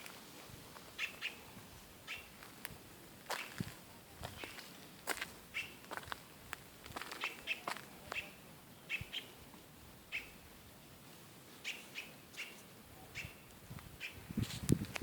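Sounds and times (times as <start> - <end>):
bird chirping: 1.0 - 1.5, 2.1 - 2.4, 5.5 - 5.8, 10.1 - 10.4, 11.6 - 14.2.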